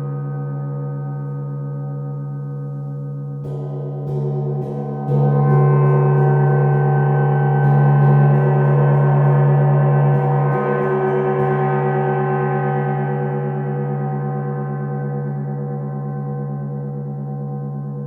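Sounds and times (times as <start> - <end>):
gong struck with soft mallet: 3.4 - 12.8.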